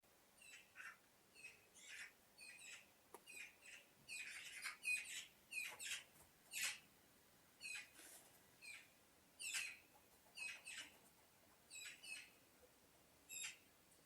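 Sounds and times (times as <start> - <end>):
birds chirping: 0.4 - 6.9, 7.6 - 8.0, 8.6 - 11.1, 11.7 - 12.4, 13.3 - 13.7.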